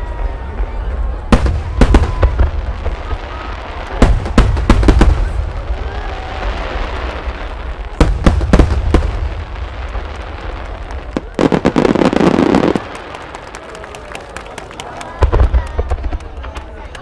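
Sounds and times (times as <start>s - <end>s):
firework shells booming: 1.3s - 5.8s, 7.1s - 13.3s.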